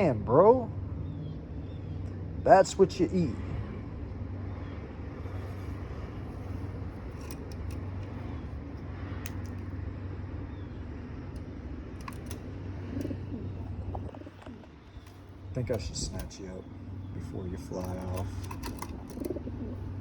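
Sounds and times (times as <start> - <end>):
steady low hum: 0.0 - 20.0
light clicks: 5.5 - 9.8, 11.3 - 20.0
pigeons cooing: 11.4 - 20.0.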